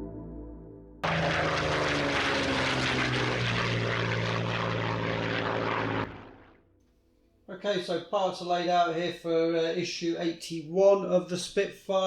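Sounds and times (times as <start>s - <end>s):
soft ambient music: 0.0s - 1.0s
propeller aircraft engine running: 1.0s - 6.8s.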